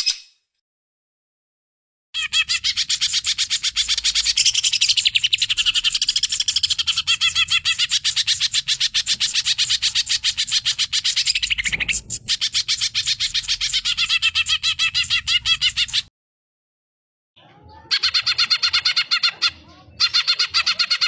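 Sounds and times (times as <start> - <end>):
bird singing fast chatter: 2.2 - 16.1.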